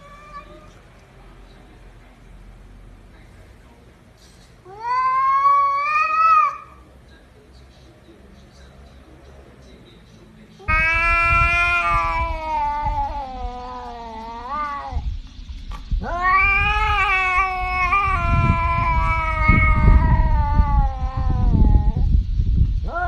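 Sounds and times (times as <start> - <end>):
cat yowling: 0.0 - 0.8, 4.6 - 6.8, 10.6 - 15.1, 16.0 - 22.1.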